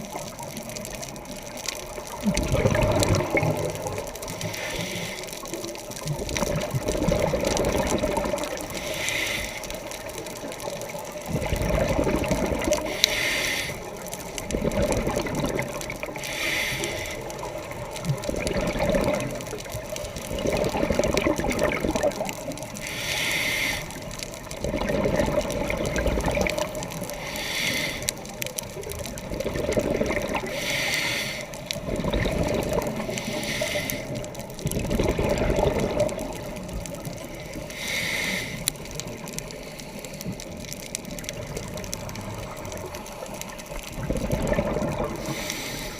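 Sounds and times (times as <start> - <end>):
exhaled bubbles rushing: 0.0 - 4.5, 5.4 - 8.9, 9.8 - 13.0, 13.9 - 16.2, 17.2 - 22.8, 24.0 - 27.2, 28.3 - 30.8, 31.6 - 33.6, 34.2 - 37.6, 40.8 - 45.4
regulator inhale hiss: 4.2 - 5.8, 8.7 - 10.2, 12.7 - 14.2, 16.1 - 17.7, 22.7 - 24.2, 27.1 - 28.4, 30.4 - 31.8, 32.9 - 34.4, 37.4 - 40.6, 45.1 - 45.9.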